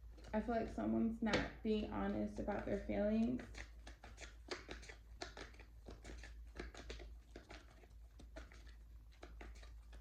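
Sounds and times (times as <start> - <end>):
cards clicking and tapping: 3.4 - 10.0.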